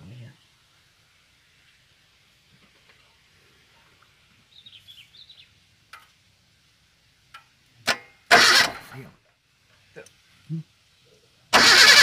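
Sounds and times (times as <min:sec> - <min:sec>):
bird chirps: 0:04.5 - 0:05.6.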